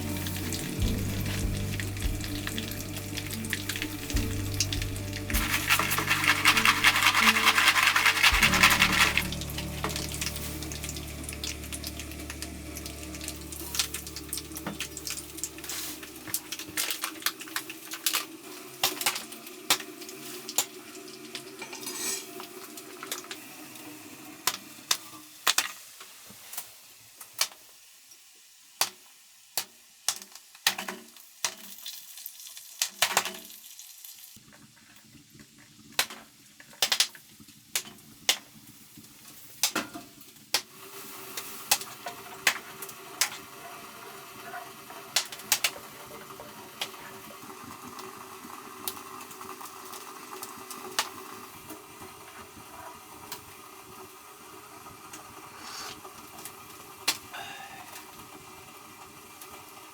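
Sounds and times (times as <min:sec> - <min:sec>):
cookware and utensils clinking: 0:00.0 - 0:17.1, 0:21.4 - 0:23.2
steady hiss: 0:00.0 - 0:17.3, 0:54.5 - 0:59.5.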